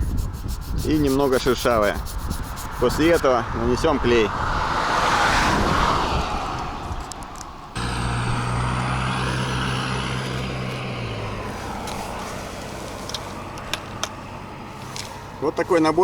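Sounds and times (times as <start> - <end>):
rough even noise: 0.0 - 3.4, 7.8 - 13.1
engine-like hum: 7.0 - 16.0.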